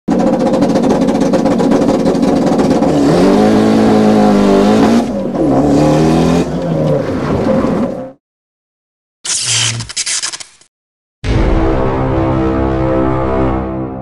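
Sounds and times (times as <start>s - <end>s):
car engine accelerating: 0.1s - 8.1s.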